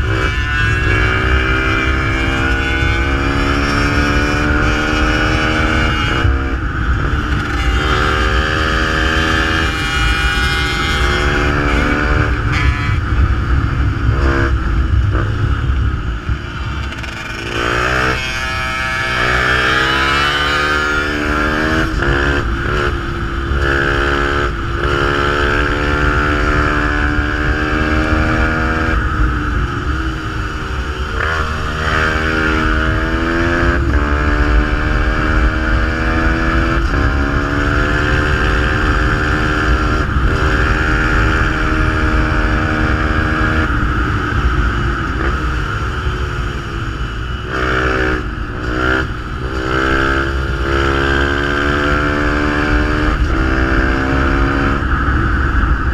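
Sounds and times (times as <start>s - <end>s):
motorcycle engine accelerating: 0.0s - 55.9s
constant low rumble: 3.5s - 18.4s, 54.7s - 55.9s.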